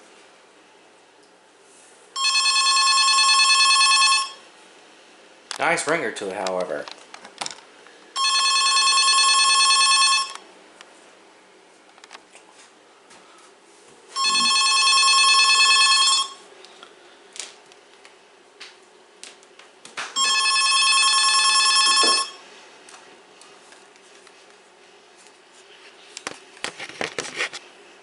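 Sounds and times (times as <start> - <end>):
electronic telephone ringing: 2.2 - 4.5, 8.1 - 10.4, 14.2 - 16.5, 20.2 - 22.4.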